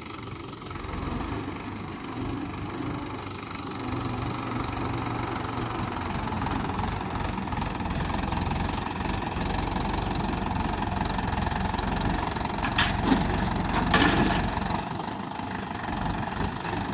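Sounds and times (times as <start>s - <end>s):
tractor engine running: 0.0s - 16.9s
short metallic clanks: 12.6s - 14.6s.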